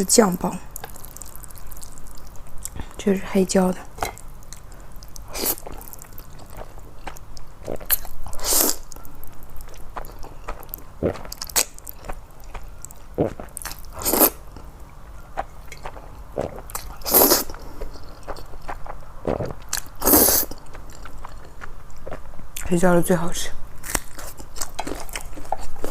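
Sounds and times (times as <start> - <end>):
person chewing noodles: 0.6 - 3.0, 3.8 - 22.7, 23.8 - 25.9
loud slurps: 5.3 - 5.8, 7.6 - 8.8, 13.2 - 14.4, 16.4 - 17.6, 19.3 - 20.6.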